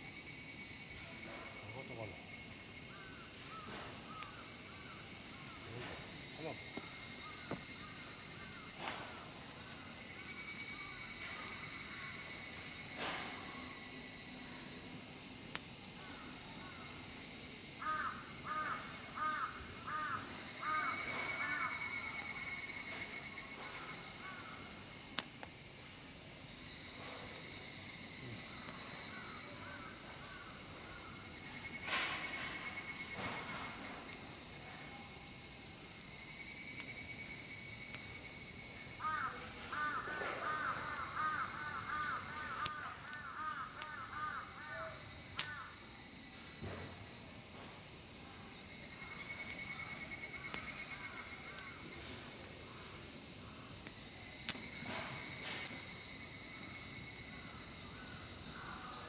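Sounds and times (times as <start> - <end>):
insects chorus: 0.0 - 59.0
crow cawing: 2.9 - 5.7, 17.8 - 21.9, 23.8 - 24.7, 39.0 - 45.8, 58.0 - 59.0
campfire wood cracking: 6.6 - 8.0, 15.4 - 15.8, 23.8 - 26.0, 39.1 - 44.6, 45.3 - 45.6, 50.4 - 58.5.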